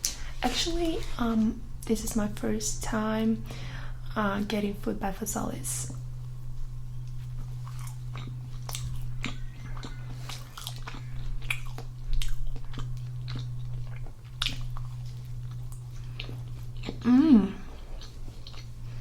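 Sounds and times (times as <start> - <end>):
low electrical hum: 0.0 - 19.0
chewing crusty bread: 5.9 - 19.0.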